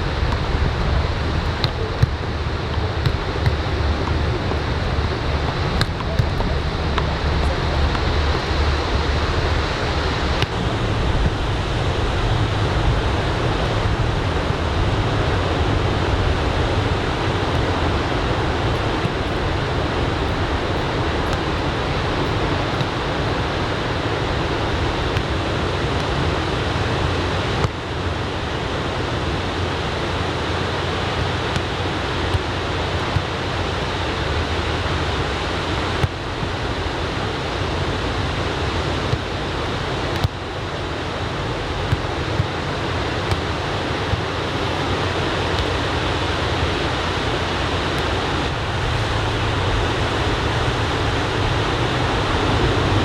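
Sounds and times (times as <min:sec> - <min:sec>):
wind: 0:00.0 - 0:53.0.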